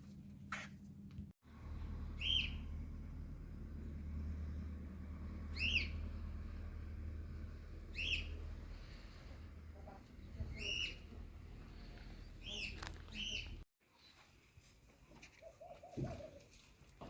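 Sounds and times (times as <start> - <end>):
bird chirping: 2.1 - 2.7, 5.5 - 6.1, 7.9 - 8.9.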